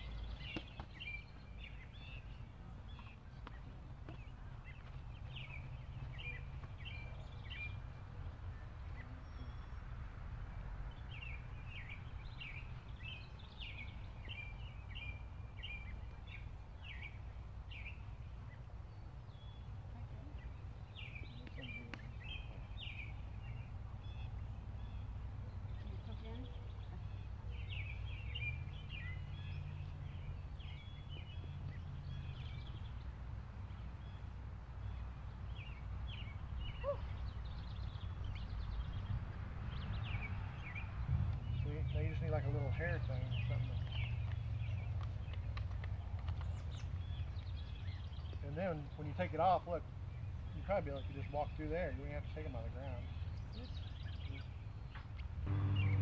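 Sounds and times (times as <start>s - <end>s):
songbird singing: 0.0s - 56.0s
low steady rumble: 55.3s - 56.0s.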